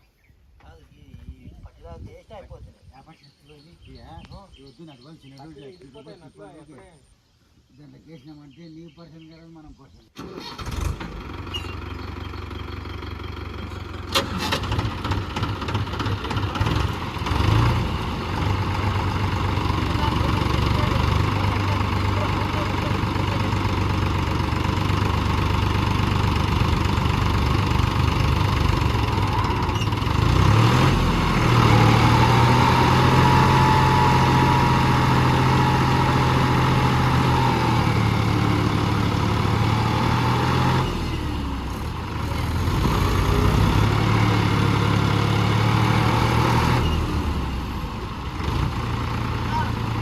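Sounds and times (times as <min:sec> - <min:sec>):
tractor diesel engine revving: 0:10.2 - 0:50.0.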